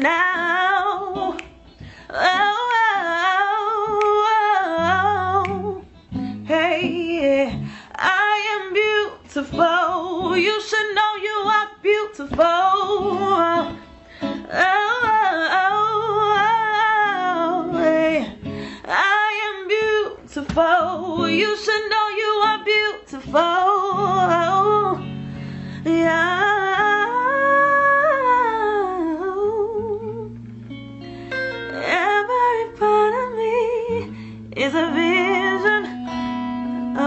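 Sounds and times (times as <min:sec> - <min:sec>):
woman singing long held notes: 0:00.0 - 0:25.2, 0:25.8 - 0:30.3, 0:31.7 - 0:37.0
guitar accompaniment: 0:00.0 - 0:37.0.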